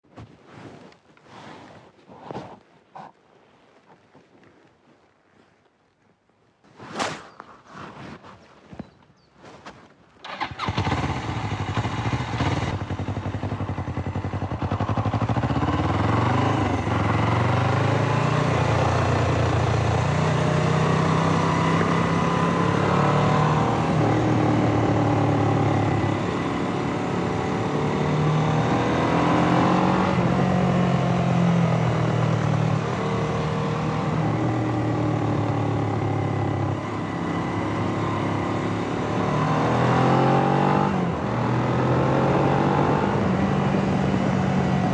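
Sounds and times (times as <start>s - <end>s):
motorcycle engine revving: 10.2s - 44.9s.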